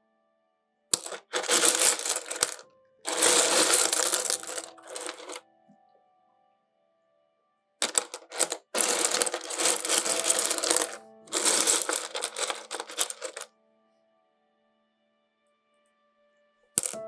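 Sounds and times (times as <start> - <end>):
stones clattering together: 1.0 - 5.4, 7.8 - 13.5, 16.8 - 17.0.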